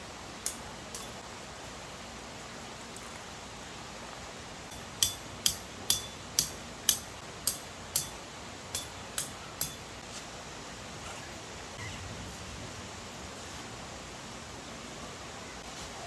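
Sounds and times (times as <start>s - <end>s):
steady hiss: 0.0s - 16.0s
sharp metallic taps ringing: 4.7s - 10.0s.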